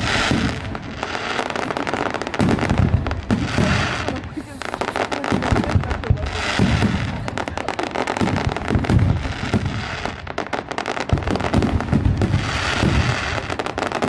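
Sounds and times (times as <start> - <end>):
fireworks crackling pops: 0.0 - 14.0
low firework booms: 0.0 - 14.0.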